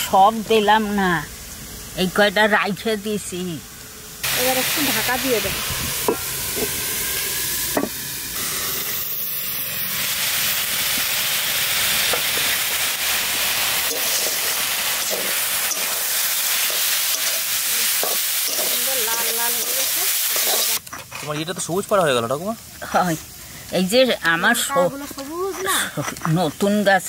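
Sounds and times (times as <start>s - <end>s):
cabbage sizzling in oil: 0.0s - 27.0s
stirring scrapes and knocks: 24.8s - 26.8s.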